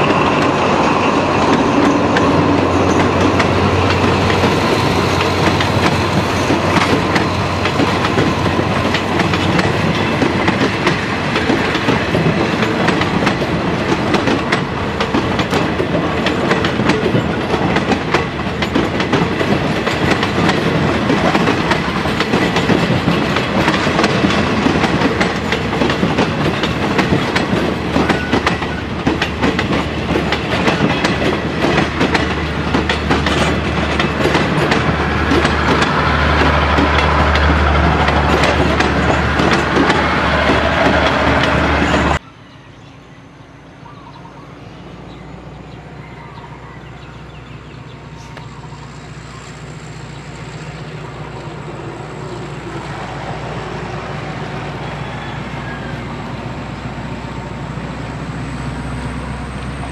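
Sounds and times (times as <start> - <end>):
wheels clattering over rail joints: 0.0 - 42.2
train rumbling past: 0.0 - 59.9.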